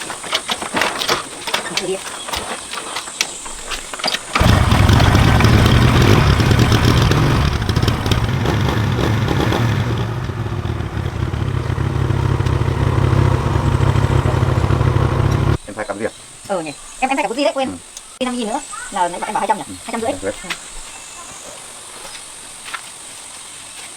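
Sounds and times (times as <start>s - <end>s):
motorbike engine running: 4.4s - 15.6s.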